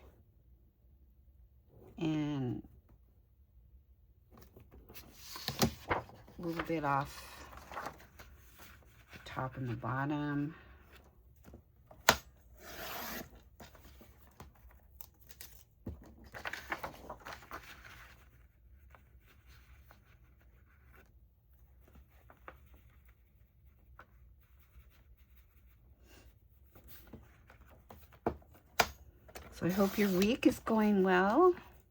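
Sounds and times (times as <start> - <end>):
paper rustling: 4.3 - 9.2, 12.8 - 25.7, 26.7 - 31.8.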